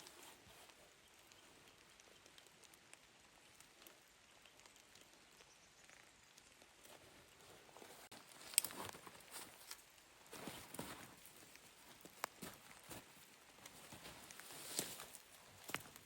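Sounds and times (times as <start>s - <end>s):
footsteps crunching in snow: 6.9s - 16.0s.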